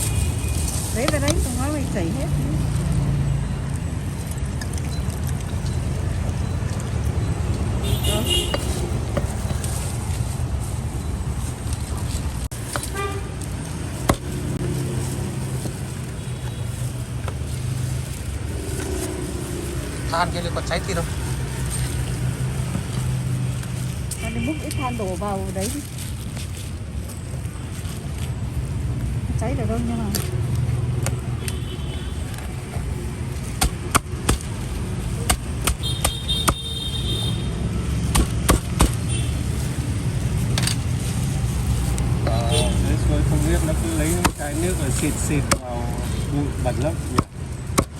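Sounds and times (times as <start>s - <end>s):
street traffic noise: 0.0s - 47.9s
cleaver chopping on a board: 33.6s - 34.5s, 35.2s - 36.7s, 38.1s - 39.0s, 44.2s - 44.4s, 47.1s - 47.9s
vehicle engine droning: 37.5s - 47.9s.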